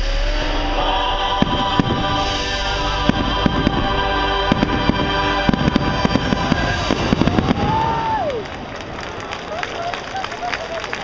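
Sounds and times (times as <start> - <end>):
high rising tone: 0.0 - 8.3
show music: 0.0 - 8.4
fireworks bangs and crackles: 1.4 - 9.6.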